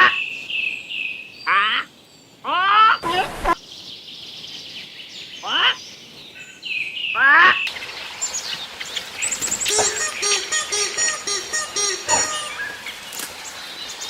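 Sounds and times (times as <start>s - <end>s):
high chirps: 9.7s - 12.8s
harsh animal calls: 9.7s - 12.9s.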